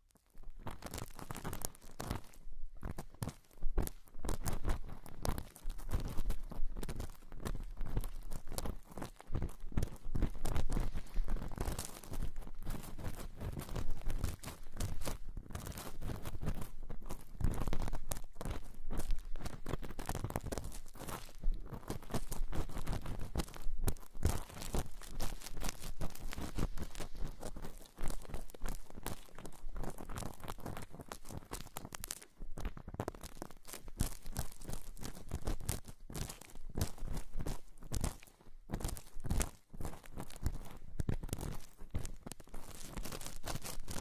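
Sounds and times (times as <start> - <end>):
material crinkling at microphone: 0.0 - 44.0.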